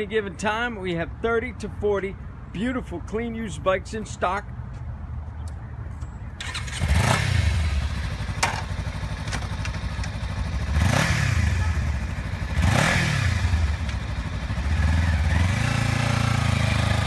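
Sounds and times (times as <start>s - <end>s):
motorcycle engine idling: 6.4s - 17.0s.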